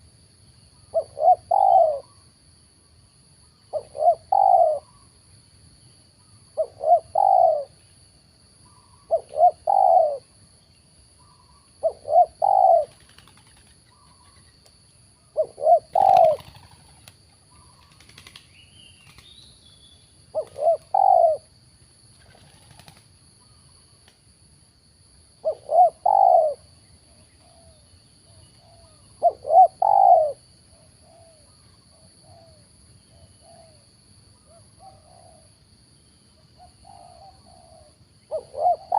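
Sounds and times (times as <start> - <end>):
dove cooing: 0.9 - 2.2, 3.7 - 5.0, 6.6 - 7.8, 8.8 - 10.3, 11.2 - 14.4, 15.4 - 18.2, 20.3 - 21.5, 25.4 - 26.7, 28.6 - 31.6, 32.2 - 33.8, 34.5 - 35.5, 36.6 - 38.9
wing flutter: 12.8 - 14.5, 15.9 - 19.5, 22.1 - 23.2.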